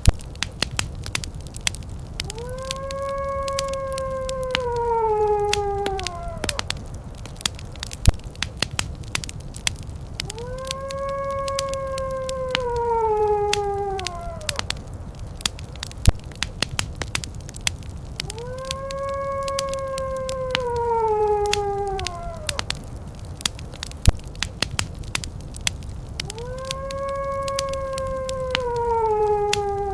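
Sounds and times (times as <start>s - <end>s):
fireplace crackling and popping: 0.0s - 29.9s
wolf howling: 2.1s - 7.6s, 10.0s - 15.8s, 17.8s - 24.6s, 25.9s - 29.9s.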